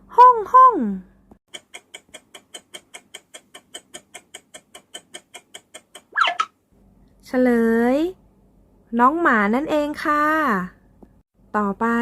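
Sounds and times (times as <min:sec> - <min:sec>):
clock-like ticking: 0:01.5 - 0:06.1.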